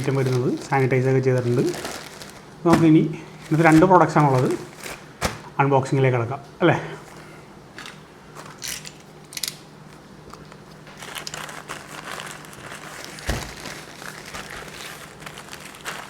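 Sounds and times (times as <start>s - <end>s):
packaging crinkling: 0.0s - 5.6s, 10.8s - 16.0s.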